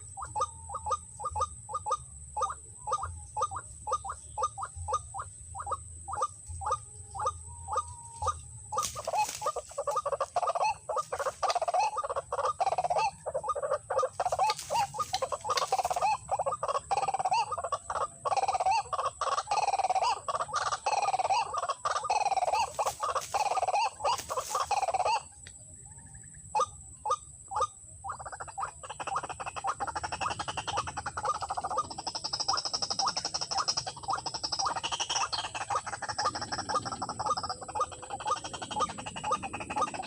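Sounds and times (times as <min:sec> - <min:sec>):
waterhen calling: 0:00.0 - 0:25.3.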